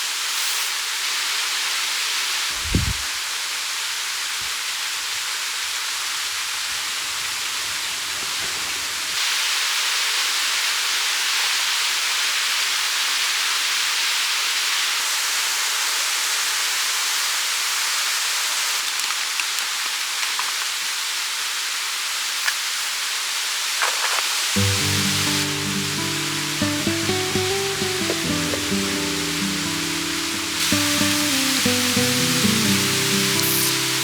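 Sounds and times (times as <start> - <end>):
stream water rushing: 24.4 - 34.0.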